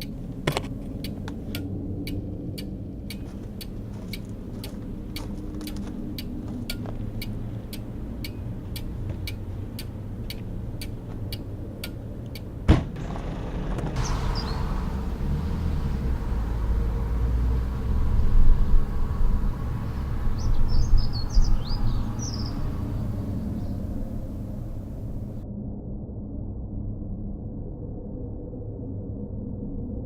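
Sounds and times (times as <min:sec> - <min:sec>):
clock ticking: 0:00.0 - 0:12.6
low steady hum: 0:00.0 - 0:25.4
sudden loud knock: 0:12.7 - 0:13.3.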